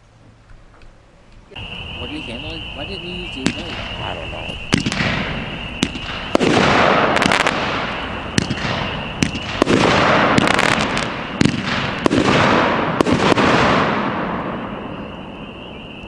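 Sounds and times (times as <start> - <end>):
hissing crackling firework bursts: 1.5 - 16.0
firework launch thumps: 3.4 - 14.2.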